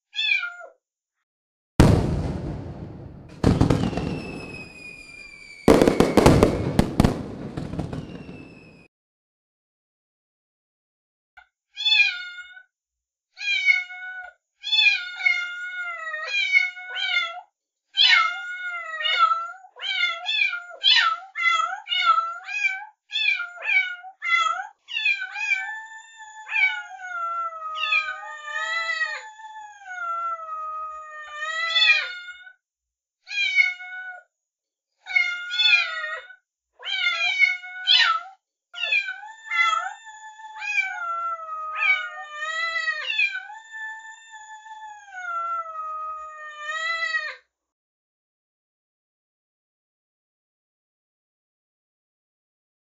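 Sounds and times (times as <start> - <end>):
kittens mewing: 38.8 - 47.2.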